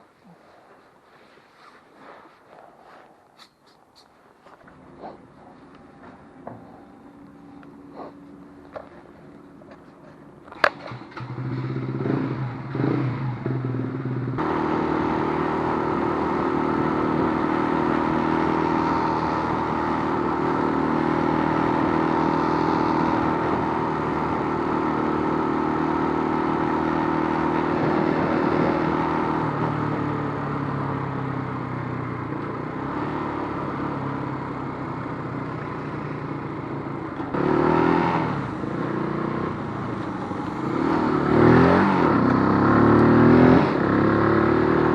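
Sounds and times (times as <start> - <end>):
motorcycle engine running: 4.4 - 44.9
motorcycle throttle blips: 33.4 - 44.9.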